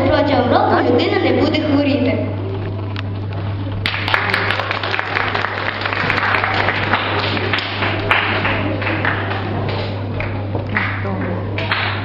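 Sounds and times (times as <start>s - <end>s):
low electrical hum: 0.0s - 12.0s
audience applause: 3.8s - 11.1s.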